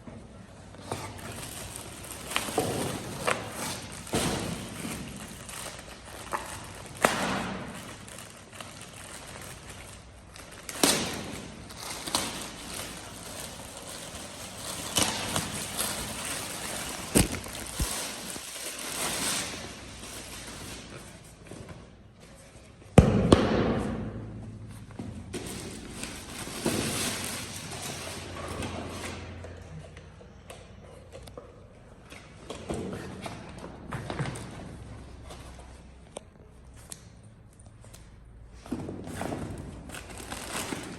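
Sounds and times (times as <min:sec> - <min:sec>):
packaging rustling: 0:01.0 - 0:21.6.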